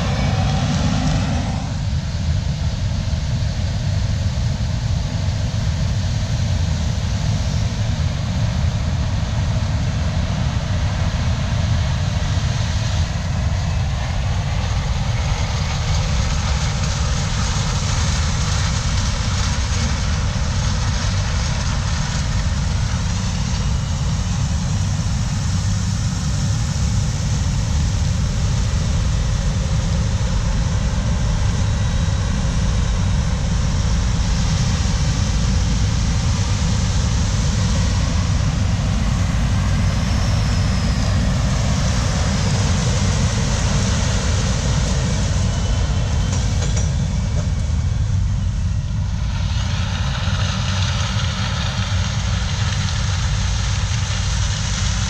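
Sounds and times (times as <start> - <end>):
diesel machinery engine rumble: 0.0 - 2.5.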